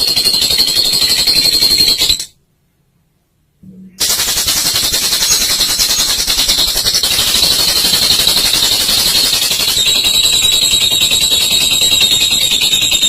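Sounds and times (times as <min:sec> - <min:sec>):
lovebird rattling chatter: 0:04.0 - 0:13.0.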